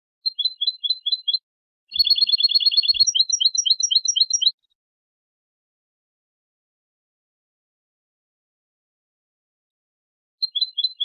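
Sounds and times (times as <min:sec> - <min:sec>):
goldfinch singing: 0:00.3 - 0:04.6, 0:10.4 - 0:11.0.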